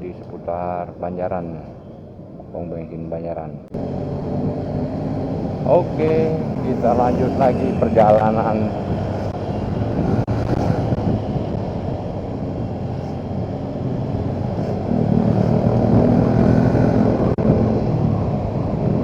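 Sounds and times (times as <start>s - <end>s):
wind and road noise: 0.0s - 19.0s
motorcycle engine running: 3.7s - 19.0s.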